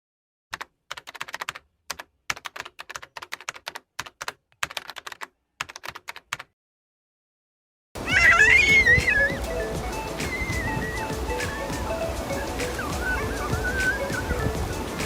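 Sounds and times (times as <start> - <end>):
keyboard typing: 0.5 - 6.5.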